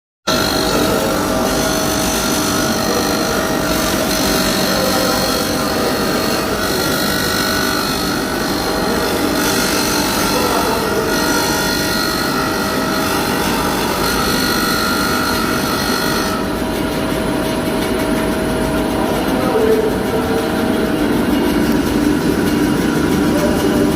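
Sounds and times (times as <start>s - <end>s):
power tool grinding blade: 0.3s - 18.2s.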